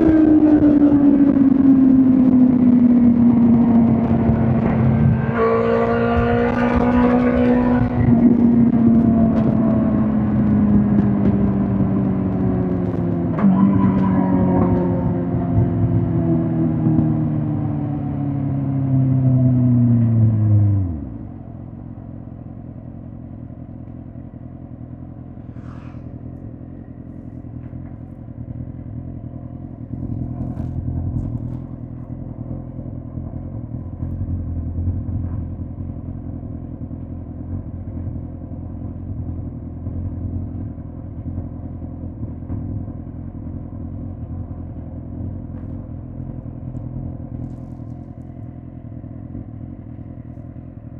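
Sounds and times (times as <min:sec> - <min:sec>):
motorcycle engine winding down: 0:00.0 - 0:21.3.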